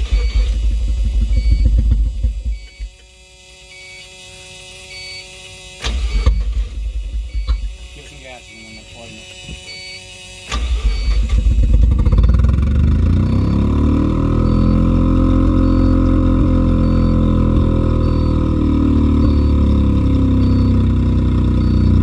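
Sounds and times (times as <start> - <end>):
engine cranking on starter: 0.0 - 3.1, 5.8 - 7.8, 10.1 - 22.0
rotary engine idling: 0.0 - 3.2, 5.6 - 22.0.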